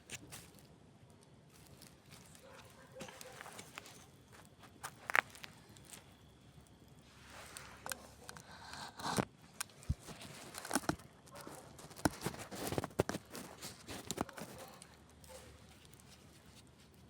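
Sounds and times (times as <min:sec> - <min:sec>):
faint fire hiss: 0:03.2 - 0:10.2.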